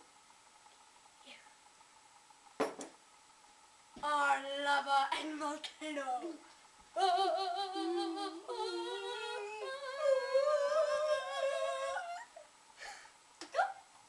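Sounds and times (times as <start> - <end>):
voices humming long notes: 6.9 - 12.5.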